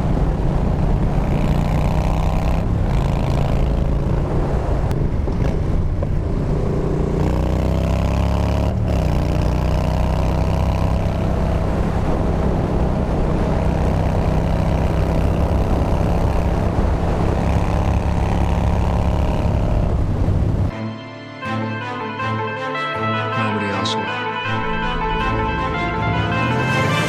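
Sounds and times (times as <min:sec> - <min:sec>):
motorcycle engine while riding: 0:00.0 - 0:20.7, 0:26.2 - 0:27.0.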